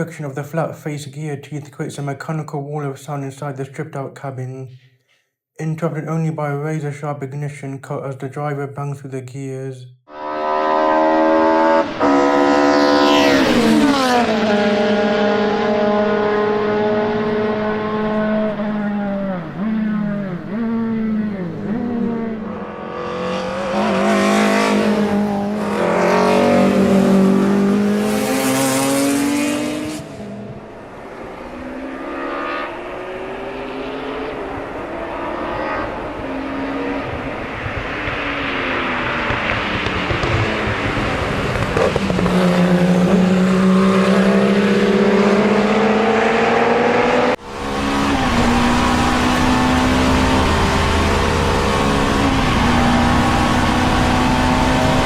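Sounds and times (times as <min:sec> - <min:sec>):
race car engine running hard: 0:11.8 - 0:55.0.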